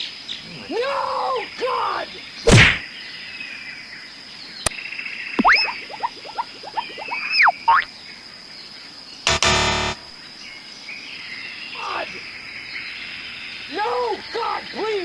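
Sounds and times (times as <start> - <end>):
outdoor ambience: 0.0 - 15.0
sliding whistle effect: 5.4 - 7.9.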